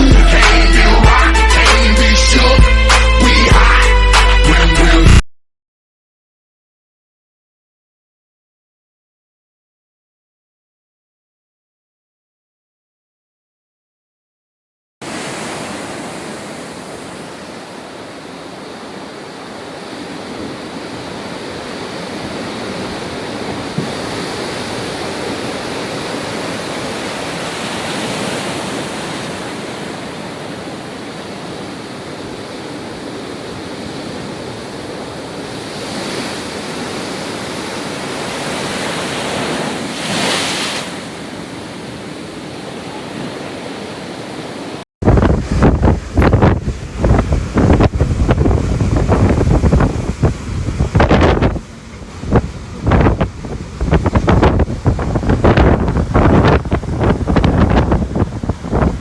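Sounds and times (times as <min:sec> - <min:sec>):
rough sea surf washing: 0:15.0 - 0:59.0.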